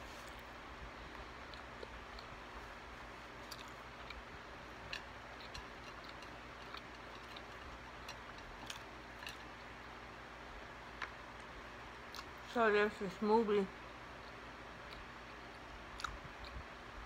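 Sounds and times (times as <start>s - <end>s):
low steady hiss: 0.0s - 17.0s
mouth chewing clicks and smacks: 1.1s - 2.4s, 3.4s - 10.0s, 12.1s - 12.5s, 14.2s - 16.7s.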